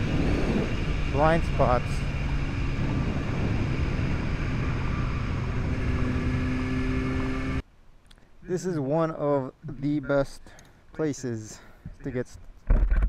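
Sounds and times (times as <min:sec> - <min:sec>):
motorcycle engine hum: 0:00.0 - 0:07.6
wind rushing over microphone: 0:00.0 - 0:07.6.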